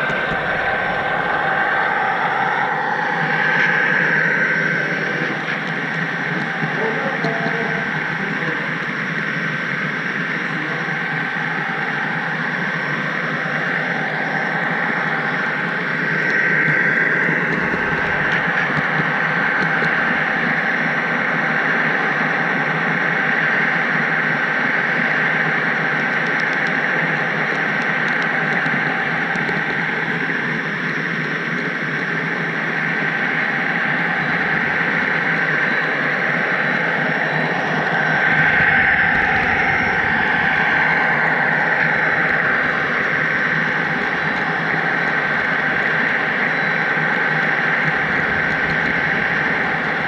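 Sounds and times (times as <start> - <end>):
thin high hum: 0.0 - 21.7, 32.3 - 50.0.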